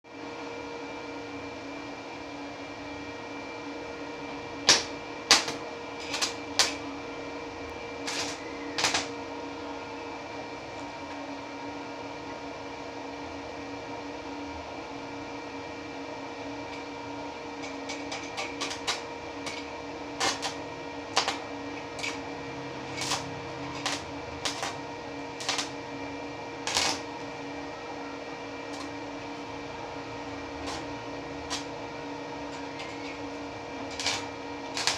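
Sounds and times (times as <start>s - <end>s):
steady machine hum: 0.1s - 34.9s.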